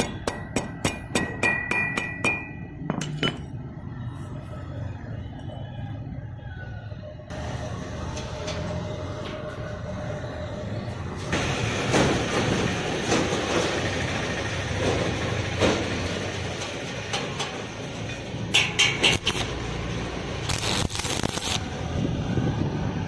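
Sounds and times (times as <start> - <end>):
welding arc crackling and sizzling: 18.8 - 21.9.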